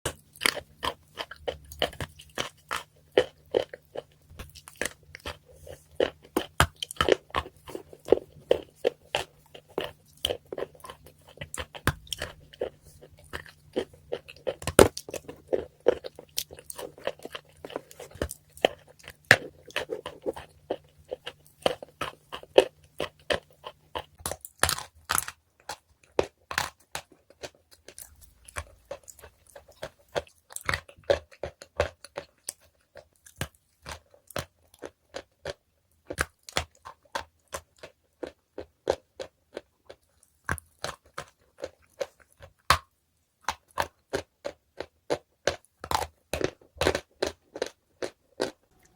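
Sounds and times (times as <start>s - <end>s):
crunchy chewing: 0.1s - 48.9s.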